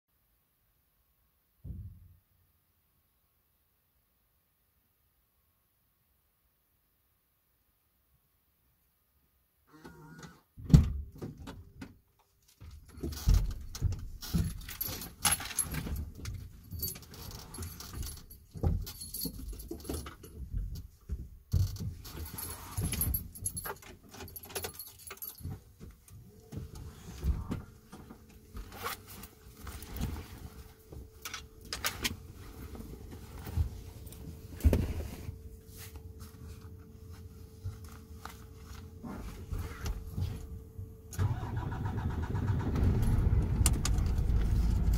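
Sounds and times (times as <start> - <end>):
keys jangling: 13.0 - 20.4, 22.0 - 25.6.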